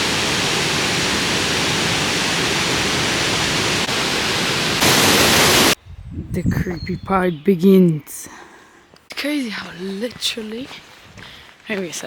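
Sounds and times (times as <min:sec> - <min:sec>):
waterfall roaring: 0:00.0 - 0:05.8.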